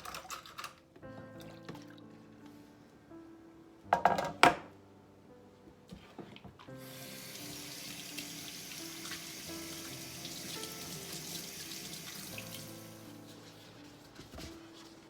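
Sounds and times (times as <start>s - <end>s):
soft background music: 0.0s - 15.0s
tap water running into sink: 6.8s - 13.0s.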